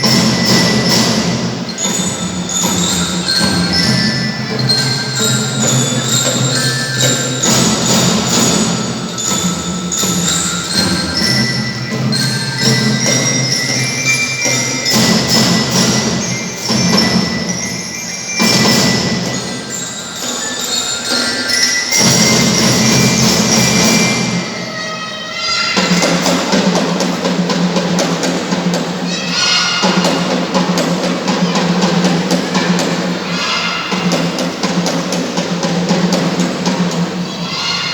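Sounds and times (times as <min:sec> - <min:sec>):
bell lyre melody: 0:00.0 - 0:24.8
marching percussion: 0:00.0 - 0:37.9.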